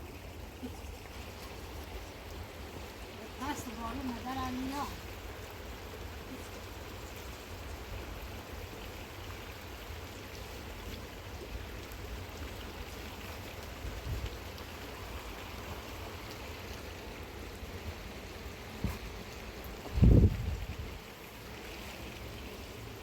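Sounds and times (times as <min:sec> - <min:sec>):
running floodwater: 0:00.0 - 0:23.0
heavy rain: 0:10.6 - 0:23.0.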